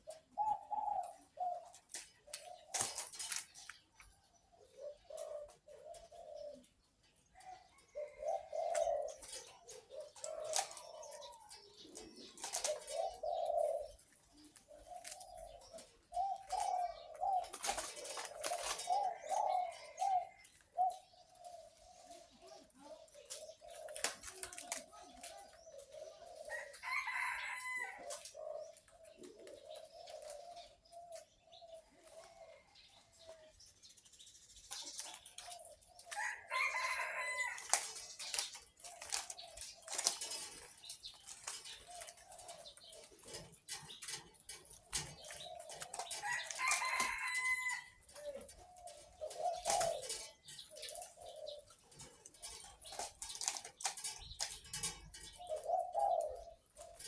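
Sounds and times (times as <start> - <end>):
dove cooing: 0.0 - 34.0, 34.6 - 57.0
rustling and clicking: 1.6 - 4.2, 8.7 - 21.2, 23.2 - 26.0, 34.5 - 57.0.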